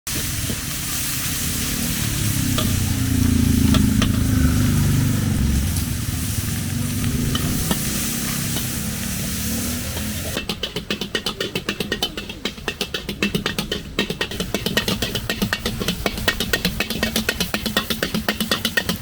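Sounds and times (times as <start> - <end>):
food sizzling in a wok: 0.1 - 19.0
fast even beat: 1.2 - 19.0
spatula clinking on pan: 10.4 - 19.0.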